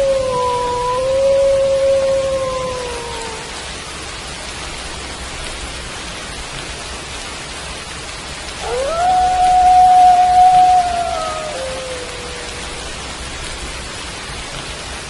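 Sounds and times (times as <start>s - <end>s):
wolf howling: 0.0s - 3.6s, 8.6s - 13.1s
steady rain falling: 0.0s - 15.0s.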